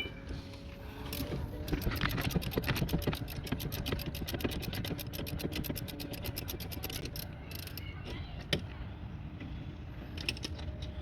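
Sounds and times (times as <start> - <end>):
ratchet wrench clicking: 1.1 - 7.8.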